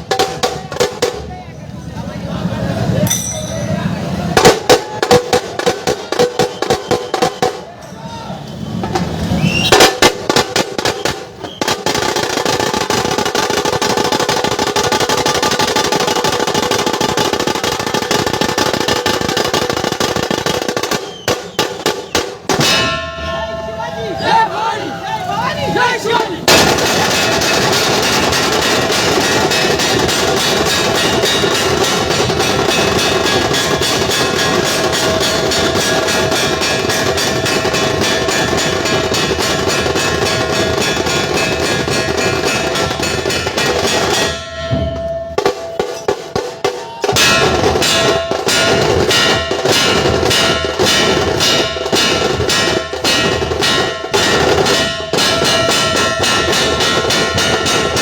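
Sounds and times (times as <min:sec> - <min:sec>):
barrel drums beaten: 0:00.0 - 0:01.3, 0:03.1 - 0:07.7, 0:09.0 - 0:24.5, 0:26.1 - 0:58.0
sharp snare-like drums: 0:00.0 - 0:01.3, 0:04.4 - 0:07.7, 0:08.8 - 0:23.0, 0:26.2 - 0:58.0.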